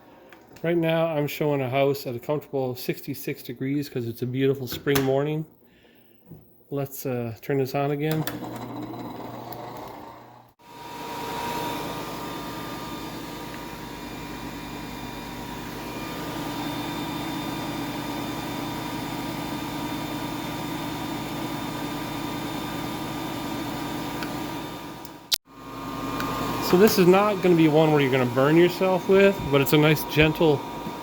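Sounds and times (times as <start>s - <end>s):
hairdryer fan motor humming: 9.5s - 31.0s.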